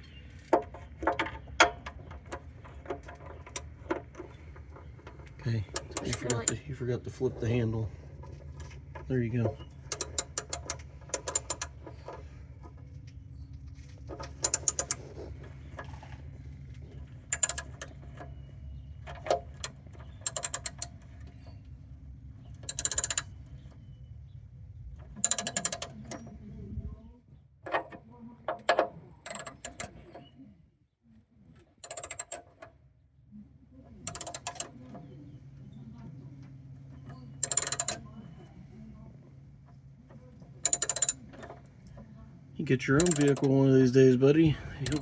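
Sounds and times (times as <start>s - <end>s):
low steady hum: 0.0s - 45.0s
socket wrench ratchet clicking: 5.8s - 6.6s, 9.9s - 11.7s, 14.4s - 15.0s, 17.3s - 17.9s, 20.2s - 20.9s, 22.7s - 23.3s, 25.2s - 25.9s, 29.3s - 29.9s, 31.8s - 32.4s, 34.1s - 34.7s, 37.4s - 38.0s, 40.6s - 41.2s, 43.0s - 43.5s.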